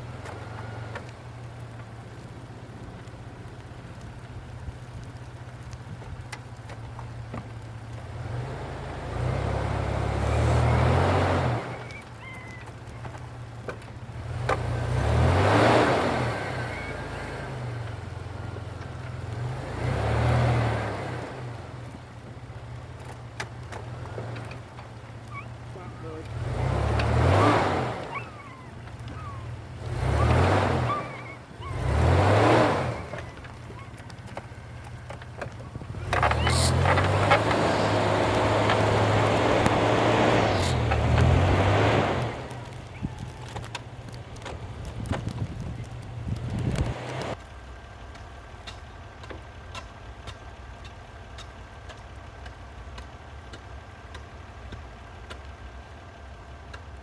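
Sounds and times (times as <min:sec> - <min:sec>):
truck engine running: 0:00.0 - 0:57.0.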